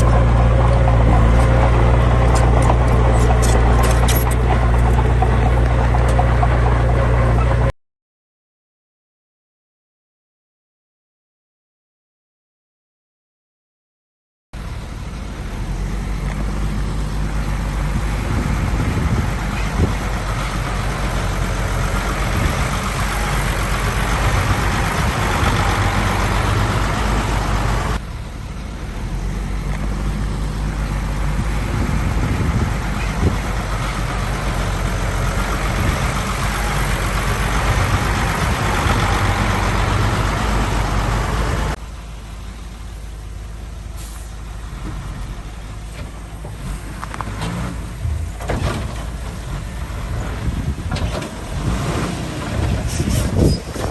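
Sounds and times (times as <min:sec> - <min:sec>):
heavy diesel machinery rumbling: 0:00.0 - 0:07.7, 0:14.6 - 0:53.9.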